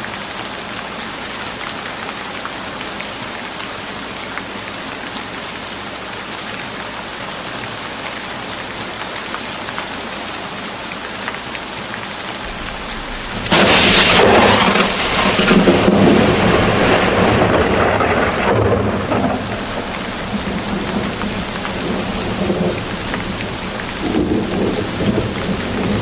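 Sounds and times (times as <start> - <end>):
steady rain falling: 0.0 - 26.0
thunder crack and rumble: 12.4 - 26.0.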